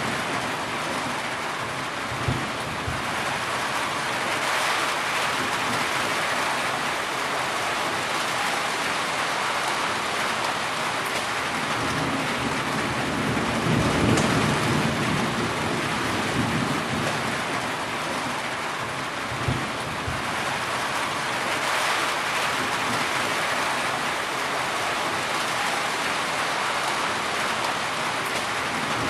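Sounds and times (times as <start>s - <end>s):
heavy rain falling: 0.0s - 29.0s
low roll of thunder: 2.1s - 3.3s, 11.6s - 17.6s, 18.8s - 20.4s.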